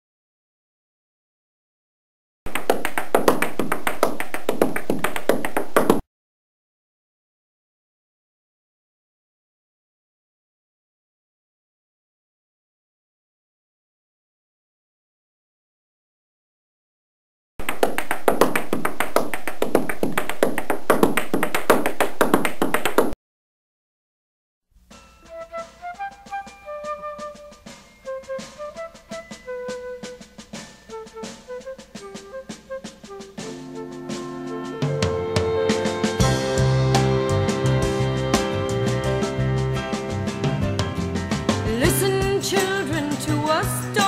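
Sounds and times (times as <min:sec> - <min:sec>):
rapid sharp taps: 0:02.5 - 0:06.0, 0:17.6 - 0:23.2.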